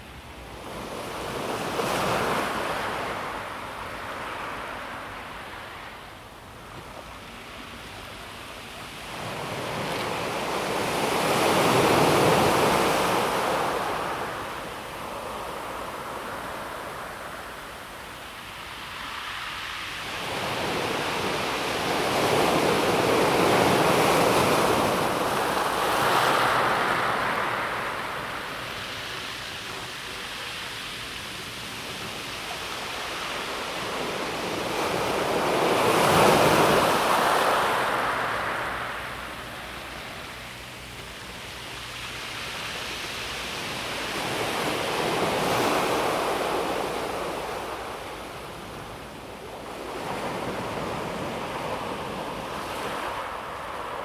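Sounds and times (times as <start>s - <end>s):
waves washing onto pebble beach: 9.2s - 40.4s.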